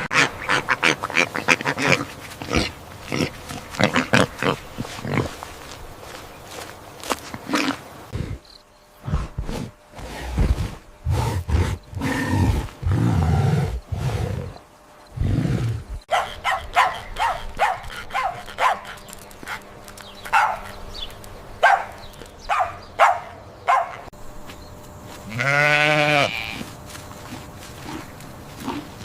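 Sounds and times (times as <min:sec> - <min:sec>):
deep rumbling animal calls: 0:09.0 - 0:14.6
sharp bark-like animal calls: 0:16.1 - 0:18.9, 0:20.3 - 0:20.7, 0:21.6 - 0:24.1.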